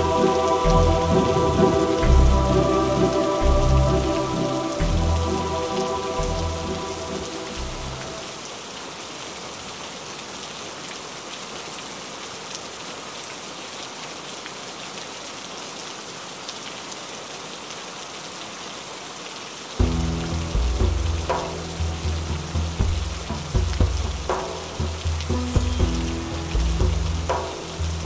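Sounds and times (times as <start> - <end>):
low sustained music notes: 0.0 - 8.4, 19.8 - 28.0
steady rain falling: 0.0 - 28.0.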